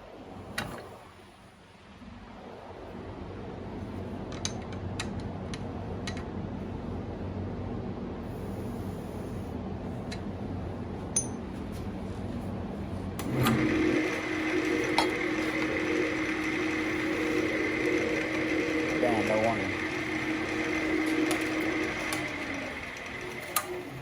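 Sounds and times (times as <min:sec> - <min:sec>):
steady low hum: 0:00.0 - 0:24.0
electric motor whining: 0:13.2 - 0:24.0.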